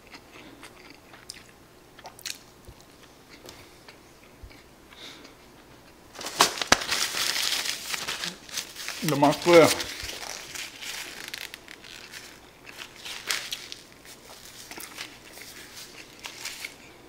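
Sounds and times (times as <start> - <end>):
person chewing: 0.0 - 6.0, 9.9 - 17.0
paper towel rustling: 6.2 - 16.8.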